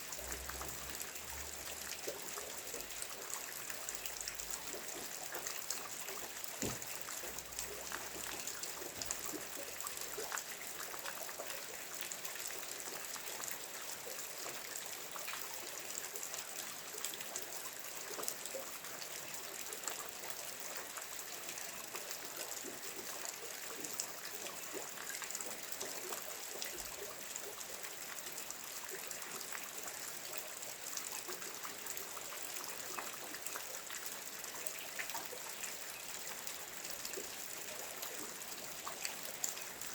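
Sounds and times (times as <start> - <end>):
steady rain: 0.0 - 12.6.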